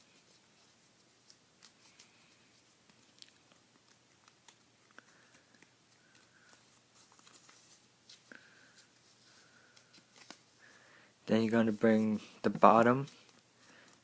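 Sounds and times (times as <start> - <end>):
paper rustling and crackling: 0.0 - 10.5.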